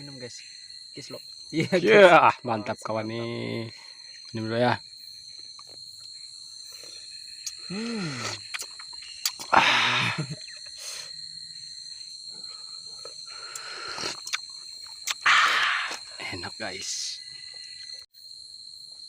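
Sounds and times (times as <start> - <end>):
crickets trilling: 0.0 - 19.0
breathy satisfied exhale: 7.6 - 8.4, 12.4 - 14.2, 15.2 - 16.0
person humming: 7.7 - 8.4.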